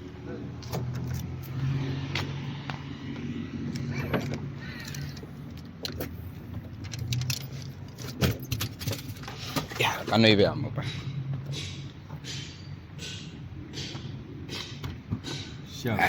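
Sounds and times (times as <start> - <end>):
sharp clicks and clinks: 6.8 - 9.3.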